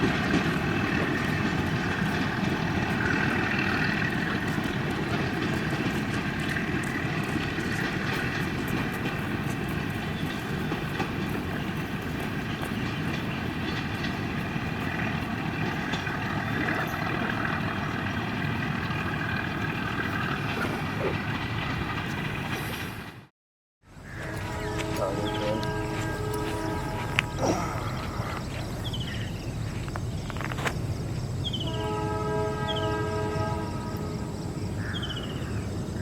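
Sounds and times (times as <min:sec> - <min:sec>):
faint rail clicks: 0:00.0 - 0:23.2
train wheels rumbling on track: 0:00.0 - 0:23.3, 0:23.9 - 0:36.0.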